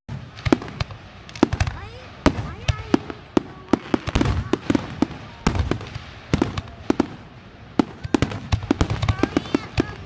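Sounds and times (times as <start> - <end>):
fireworks bangs and crackling pops: 0.1 - 10.0.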